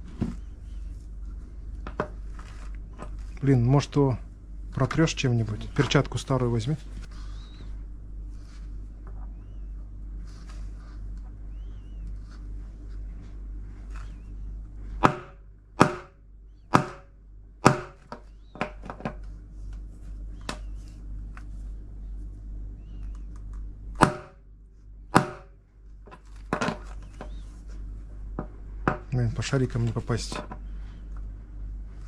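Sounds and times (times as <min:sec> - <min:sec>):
hammer striking metal: 0:15.0 - 0:16.1, 0:24.0 - 0:24.4, 0:25.2 - 0:25.5.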